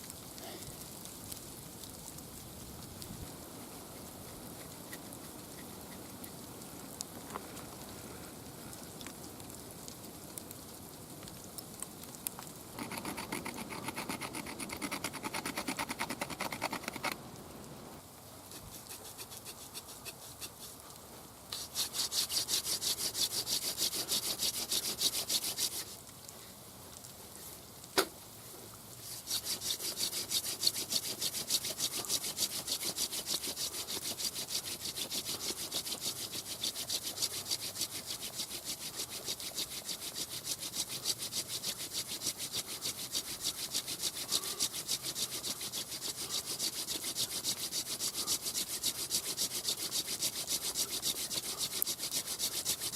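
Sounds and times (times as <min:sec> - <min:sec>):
wood sawing against wood: 0:03.9 - 0:06.2, 0:12.8 - 0:17.2, 0:18.5 - 0:20.9, 0:21.5 - 0:26.0, 0:29.0 - 0:52.9.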